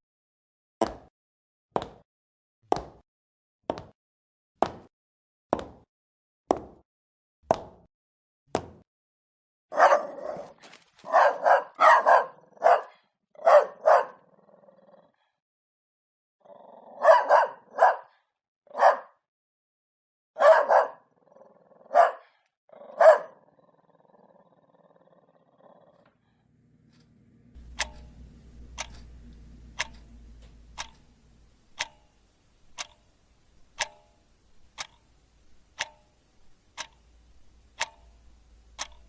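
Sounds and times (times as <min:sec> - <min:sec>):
dog barking: 0:09.7 - 0:14.3, 0:16.9 - 0:19.2, 0:20.4 - 0:21.1, 0:21.8 - 0:23.5
sharp ticks: 0:27.6 - 0:39.0.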